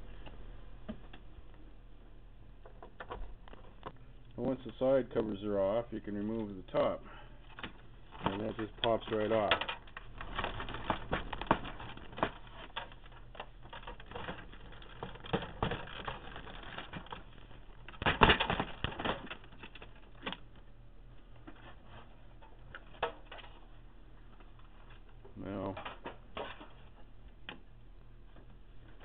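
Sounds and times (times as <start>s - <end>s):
plastic clicks and rattles: 7.5s - 20.7s.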